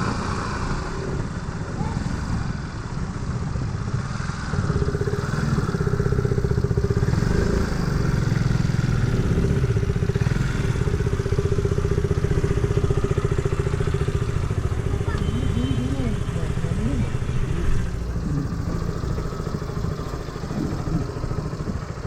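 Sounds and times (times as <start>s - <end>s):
motor scooter engine running: 0.0s - 22.0s.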